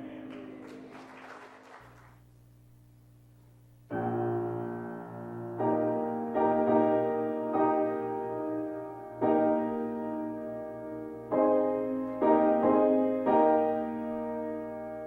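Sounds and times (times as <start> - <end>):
sustained keyboard chords: 3.9 - 15.0.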